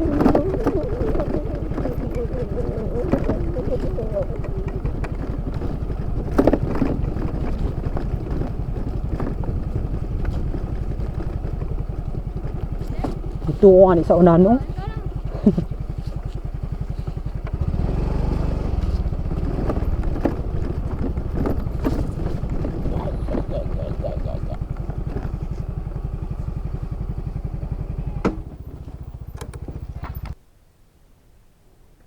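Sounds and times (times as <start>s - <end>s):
light rattles and clicks: 0.0s - 17.6s, 18.8s - 25.8s
scooter engine running: 0.0s - 30.4s.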